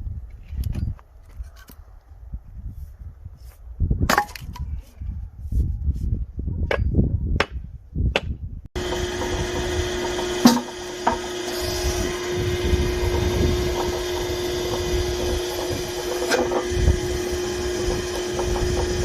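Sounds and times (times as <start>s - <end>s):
log splitter humming: 8.8s - 19.0s.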